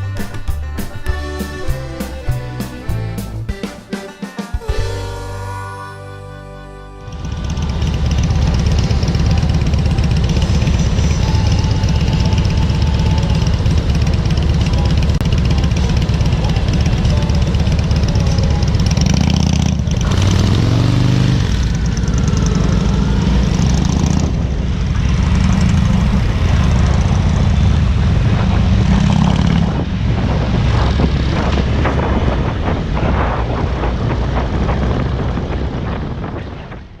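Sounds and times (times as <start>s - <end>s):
motorcycle engine accelerating: 7.0s - 36.7s
wind rush: 21.5s - 37.0s.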